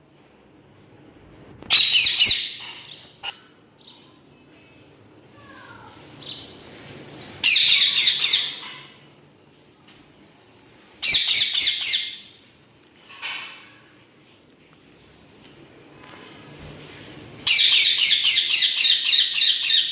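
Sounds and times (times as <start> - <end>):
parrots squawking: 1.7 - 3.5, 7.4 - 8.9, 11.0 - 12.4, 17.4 - 19.9.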